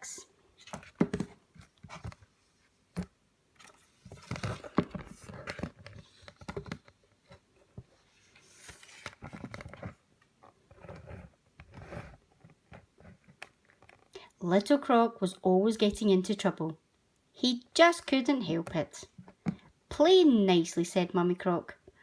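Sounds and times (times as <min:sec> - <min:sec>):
book pages rustling and turning: 0:00.5 - 0:14.1.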